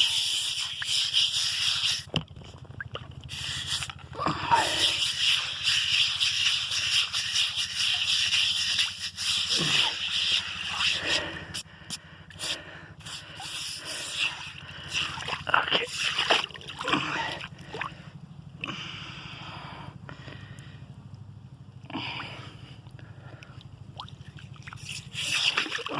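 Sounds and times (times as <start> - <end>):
steady low hum: 0.0 - 25.9
water splashing in a bird bath: 14.5 - 17.9, 23.5 - 25.9.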